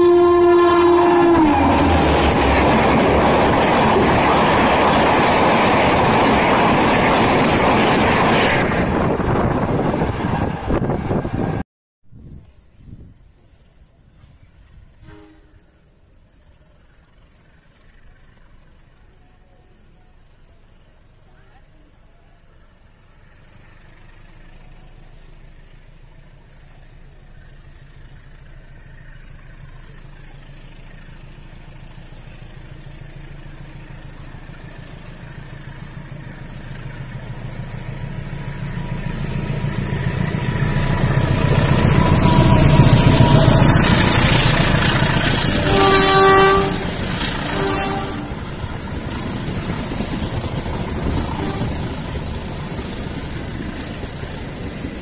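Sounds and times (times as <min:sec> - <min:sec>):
train horn blasts: 0:00.0 - 0:02.4, 0:15.0 - 0:15.9, 0:41.7 - 0:48.6, 0:51.1 - 0:52.1
passenger train rumbling past: 0:00.0 - 0:11.6, 0:12.2 - 0:55.0.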